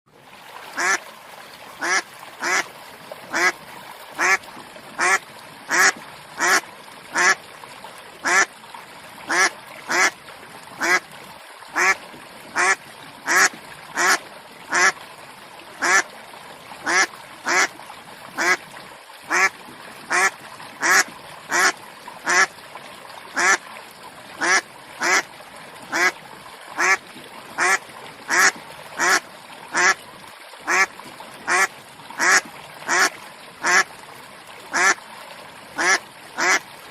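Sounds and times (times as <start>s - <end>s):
duck quacking: 0.8s - 1.0s, 1.8s - 2.6s, 3.3s - 3.5s, 4.2s - 4.4s, 5.0s - 7.4s, 8.2s - 8.5s, 9.3s - 10.1s, 10.8s - 11.0s, 11.8s - 12.0s, 12.6s - 14.9s, 15.8s - 16.0s, 16.8s - 17.7s, 18.4s - 18.6s, 19.3s - 19.5s, 20.1s - 22.5s, 23.4s - 23.6s, 24.4s - 25.2s, 25.9s - 26.1s, 26.8s - 27.0s, 27.6s - 30.0s, 30.7s - 30.9s, 31.5s - 33.8s, 34.7s - 35.0s, 35.8s - 36.6s.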